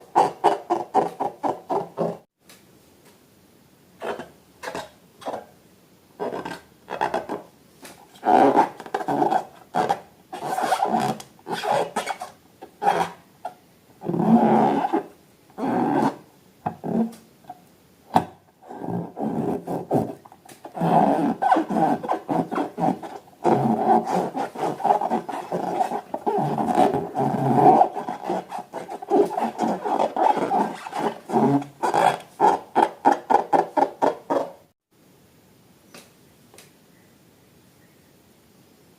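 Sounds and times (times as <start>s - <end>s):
rubbing balloons and slime: 18.7s - 34.6s.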